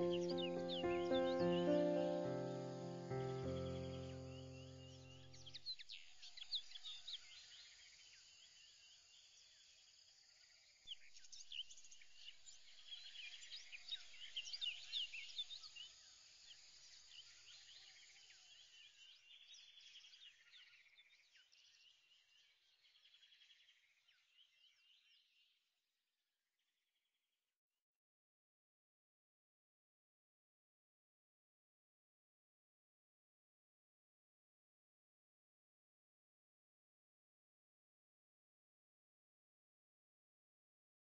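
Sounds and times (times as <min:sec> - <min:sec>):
birds chirping and twittering: 0:00.0 - 0:08.7, 0:10.9 - 0:25.4.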